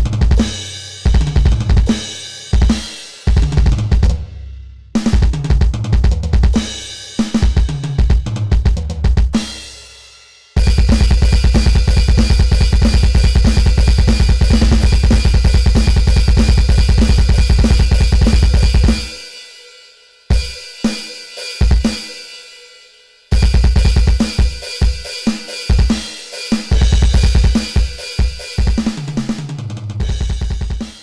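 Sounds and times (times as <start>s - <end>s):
electronic drum kit beat: 0.0s - 4.4s, 5.0s - 9.8s, 10.6s - 19.3s, 21.6s - 22.2s, 23.3s - 31.0s
heavy kick drum: 0.0s - 4.4s, 5.0s - 9.7s, 10.6s - 19.2s, 23.3s - 25.0s, 25.7s - 26.0s, 26.7s - 29.2s, 30.0s - 31.0s.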